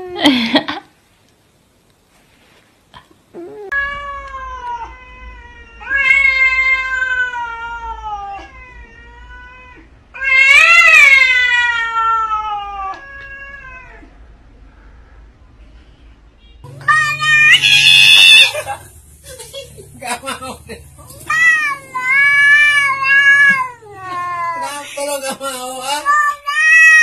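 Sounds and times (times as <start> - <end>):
cat yowling: 3.4 - 14.2, 16.7 - 18.7, 21.1 - 24.8, 25.9 - 27.0.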